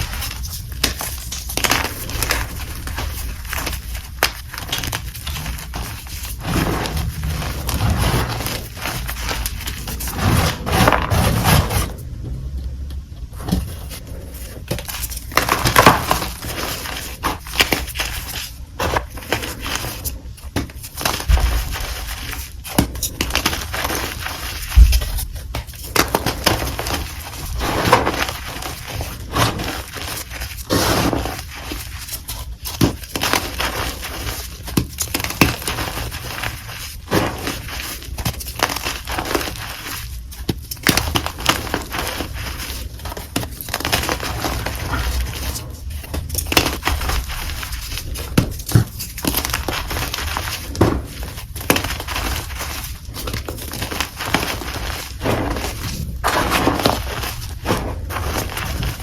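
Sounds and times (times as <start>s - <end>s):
chalk crunching and crumbling: 0.0s - 12.1s, 13.4s - 59.0s
chalk chunks cracking: 13.4s - 59.0s.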